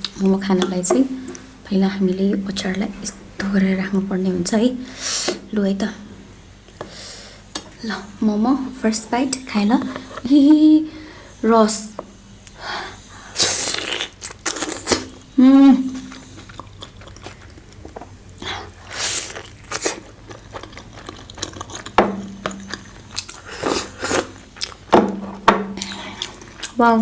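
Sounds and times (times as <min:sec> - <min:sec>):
eating with wet bites and slurps: 0:13.4 - 0:15.2, 0:15.9 - 0:24.9, 0:25.8 - 0:26.8.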